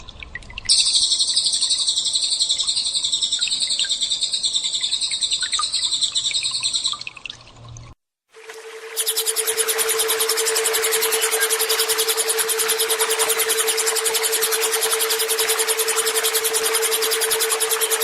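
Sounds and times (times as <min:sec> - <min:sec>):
bird chirps: 0:00.7 - 0:07.0, 0:08.9 - 0:18.0
bird high-pitched ringing trill: 0:00.7 - 0:07.0, 0:08.5 - 0:18.0
pulsing high-pitched tone: 0:08.4 - 0:18.0.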